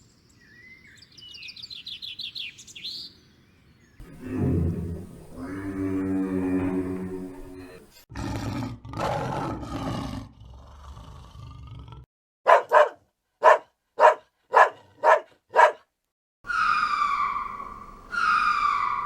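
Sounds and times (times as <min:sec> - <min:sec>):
falling animal call: 0:04.0 - 0:07.9, 0:16.5 - 0:19.0
animal roaring: 0:04.0 - 0:12.1
short animal calls: 0:16.5 - 0:19.0.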